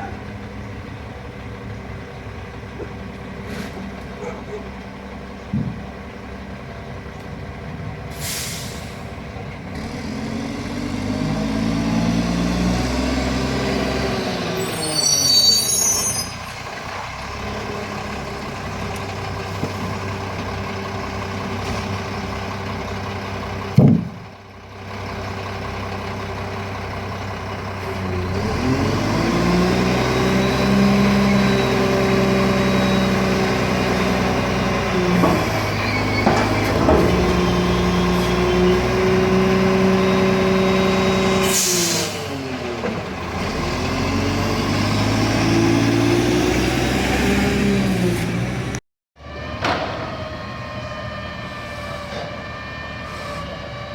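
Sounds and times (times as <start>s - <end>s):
diesel truck engine revving: 0.0s - 49.5s
air brake burst: 8.1s - 9.2s, 41.4s - 42.4s
squeal: 14.6s - 16.6s, 35.8s - 36.7s.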